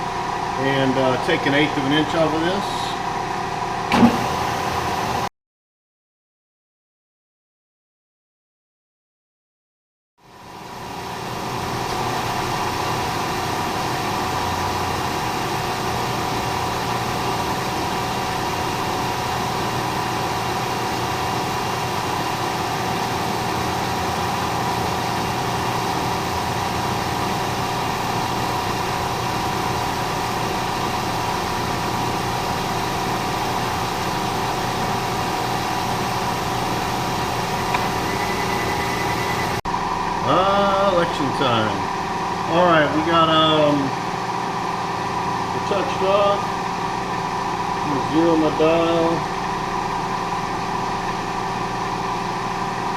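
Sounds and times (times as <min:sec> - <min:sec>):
milling machine humming: 0:00.0 - 0:05.3, 0:10.3 - 0:52.9
machine whining tones: 0:35.8 - 0:42.0.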